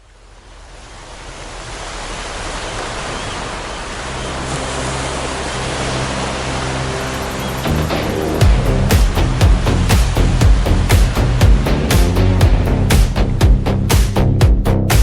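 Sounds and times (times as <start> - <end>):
ocean surf: 0.0 - 14.2
low sustained musical notes: 3.6 - 13.9.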